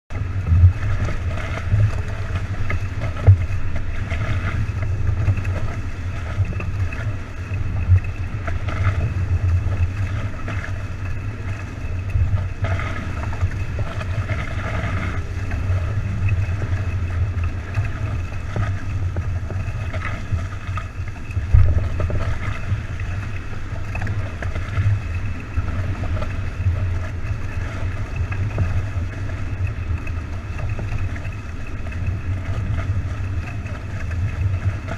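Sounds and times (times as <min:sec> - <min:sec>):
boat rushing over water: 0:00.1 - 0:34.9
heavy low rumble: 0:00.1 - 0:34.9.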